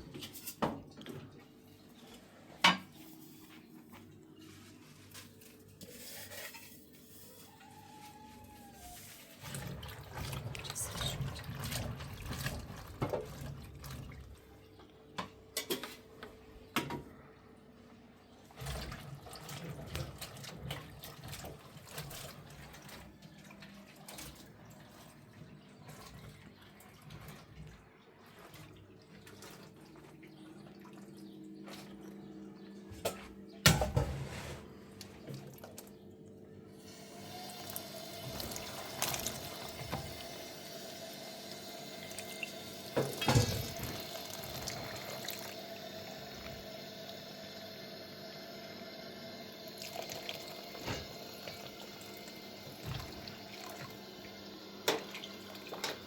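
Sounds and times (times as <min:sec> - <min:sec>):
water running and splashing: 0:08.6 - 0:14.4, 0:18.6 - 0:32.1, 0:37.1 - 0:56.0.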